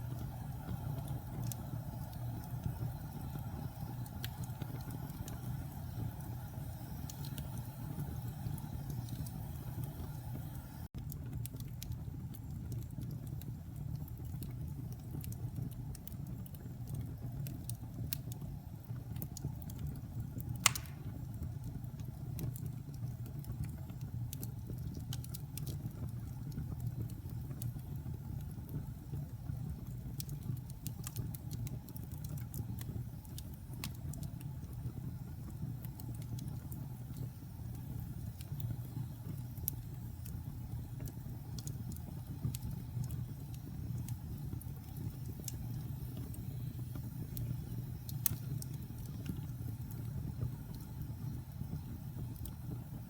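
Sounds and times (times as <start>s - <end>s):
fire burning in a fireplace: 0.0s - 53.0s
fire crackling: 0.0s - 53.0s
sharp pop from fire: 20.6s - 21.3s.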